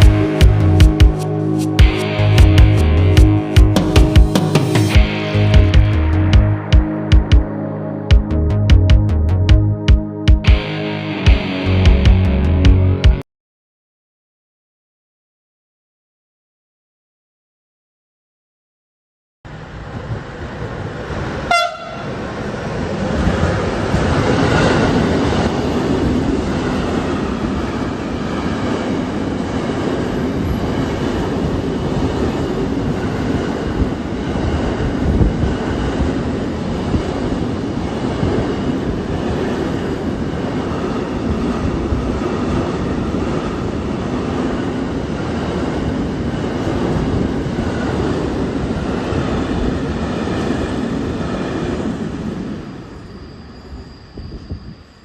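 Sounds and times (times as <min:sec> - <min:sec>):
train wheels rumbling on rails: 0:00.0 - 0:01.2, 0:19.7 - 0:55.0
faint high whine: 0:52.5 - 0:55.0.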